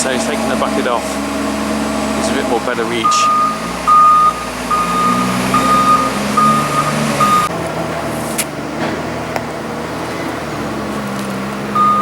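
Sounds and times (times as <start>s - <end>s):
diesel engine running: 0.0s - 12.0s
reversing alarm beeping: 2.8s - 7.5s, 11.7s - 12.0s.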